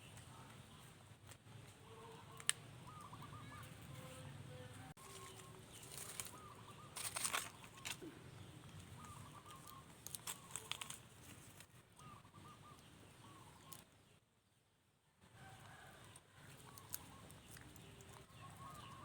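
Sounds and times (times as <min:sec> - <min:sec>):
rustling crinkling noise: 0:05.0 - 0:08.0, 0:08.8 - 0:12.0.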